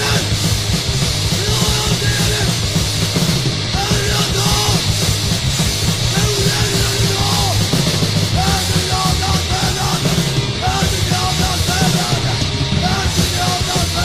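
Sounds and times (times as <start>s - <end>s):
shouted vocals: 0.0s - 0.4s, 1.3s - 2.7s, 3.7s - 4.9s, 6.0s - 14.0s
hardcore punk band playing: 0.0s - 14.0s.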